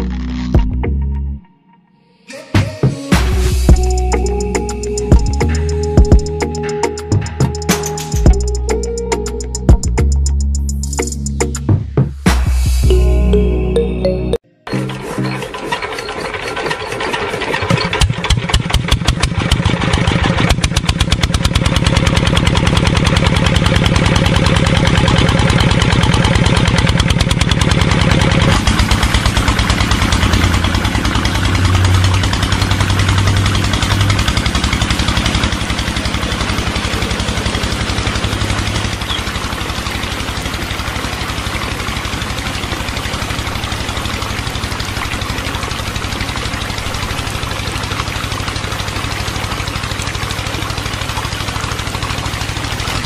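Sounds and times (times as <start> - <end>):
model tractor engine running: 14.7 - 53.0.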